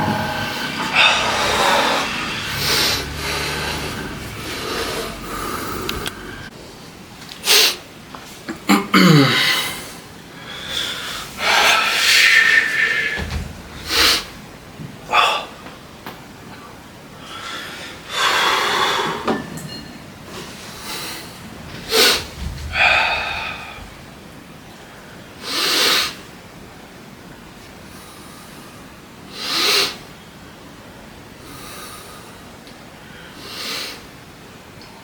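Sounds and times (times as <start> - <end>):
person exhaling forcefully: 0.0 - 6.5, 21.9 - 24.1.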